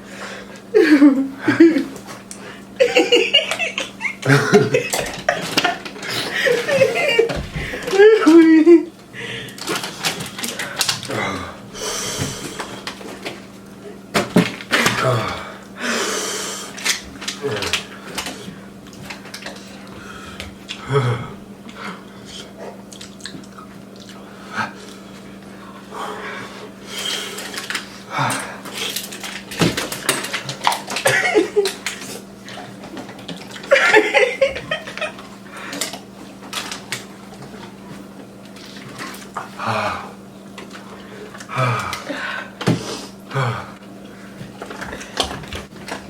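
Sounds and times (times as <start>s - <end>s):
person gasping or grunting: 11.0s - 12.6s, 14.8s - 16.3s, 20.8s - 22.0s, 28.1s - 28.6s, 39.6s - 40.2s, 41.5s - 43.8s
chewing: 21.7s - 25.1s.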